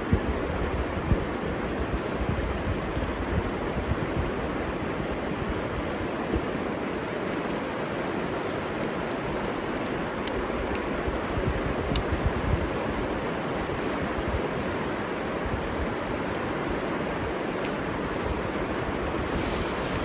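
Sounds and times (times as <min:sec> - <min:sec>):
wind rumble on microphone: 0:00.0 - 0:20.0
river water rushing: 0:00.1 - 0:20.0.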